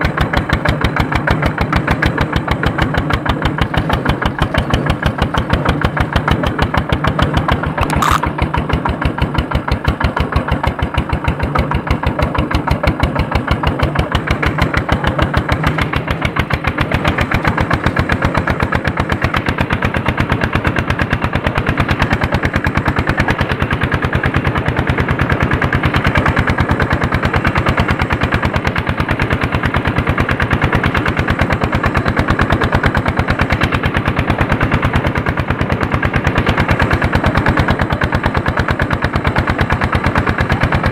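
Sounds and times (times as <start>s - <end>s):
diesel engine chugging: 0.0s - 40.9s
short sharp click: 7.8s - 8.3s.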